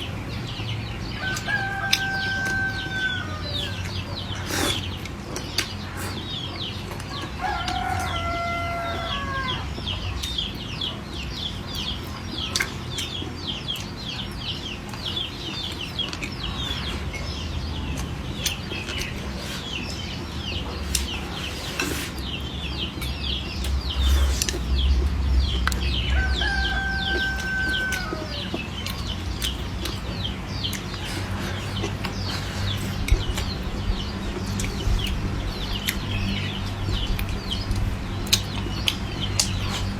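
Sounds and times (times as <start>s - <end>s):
chickens chirping: 0.0s - 39.9s
steady low hum: 0.0s - 39.9s
chicken long calls: 7.4s - 9.7s.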